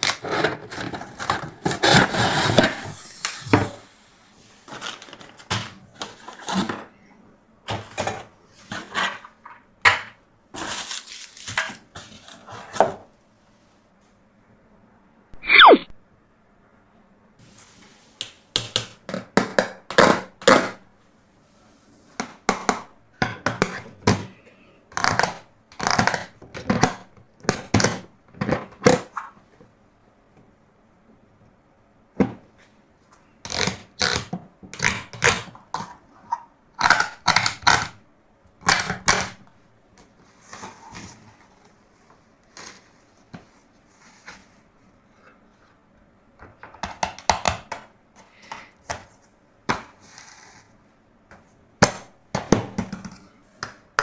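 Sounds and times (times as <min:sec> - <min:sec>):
plastic toys clicking and knocking: 0:36.8 - 0:38.0.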